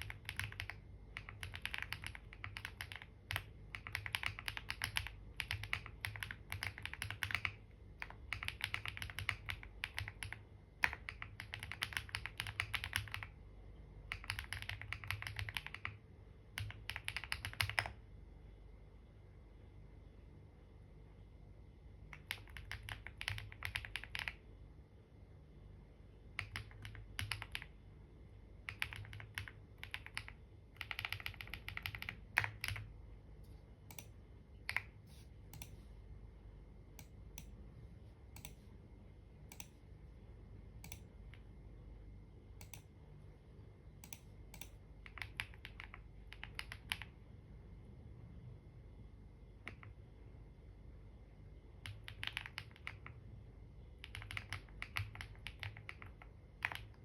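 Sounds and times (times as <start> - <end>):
typing on computer keyboard: 0.0 - 13.4, 14.1 - 18.0, 22.1 - 24.4, 26.3 - 27.8, 28.6 - 32.9, 33.9 - 35.7, 40.8 - 41.5, 44.0 - 47.2, 49.6 - 50.0, 51.8 - 53.2, 54.0 - 57.0.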